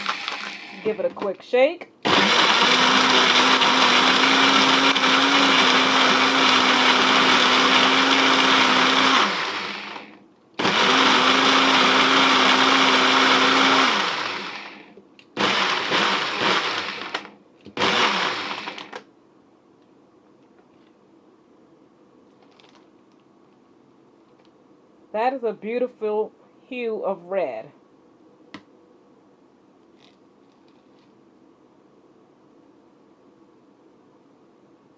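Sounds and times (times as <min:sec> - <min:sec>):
blender blending ice: 0:00.0 - 0:01.2, 0:02.1 - 0:19.0.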